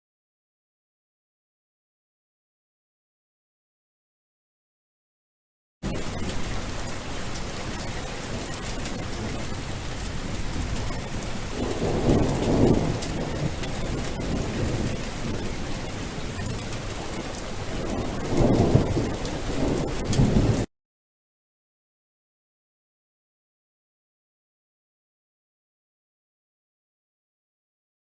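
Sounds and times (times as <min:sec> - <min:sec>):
steady rain: 0:05.8 - 0:20.7
thunder rolling: 0:05.8 - 0:20.7.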